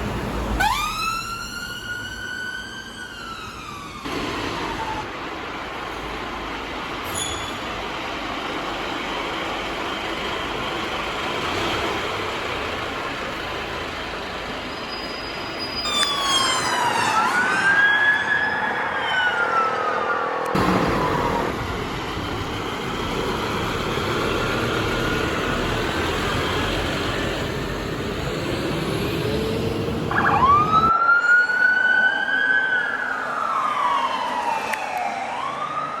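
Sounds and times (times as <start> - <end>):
two-tone police sirens wailing: 0.5 - 5.2, 15.8 - 21.8, 22.7 - 36.0
siren sweeping up and down: 0.6 - 5.1, 15.8 - 21.7, 28.0 - 36.0
fire engine diesel running: 4.1 - 15.5, 20.6 - 30.9
cars passing fast: 16.4 - 30.9.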